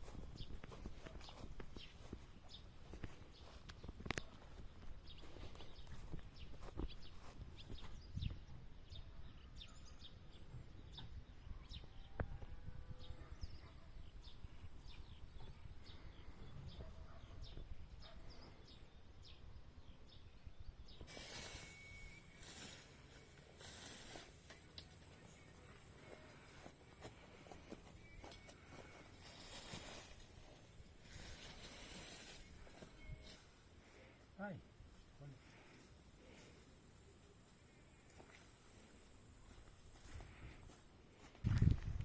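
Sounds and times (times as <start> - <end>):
small birds chirping: 0.0 - 42.0
rushing hiss: 21.1 - 24.4.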